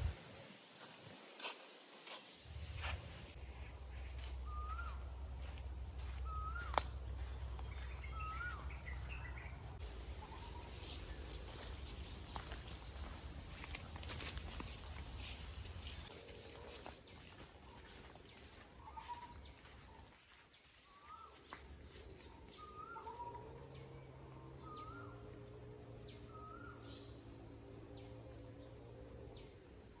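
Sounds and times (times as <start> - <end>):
insects droning: 0.0 - 30.0
bird calling: 4.0 - 11.1.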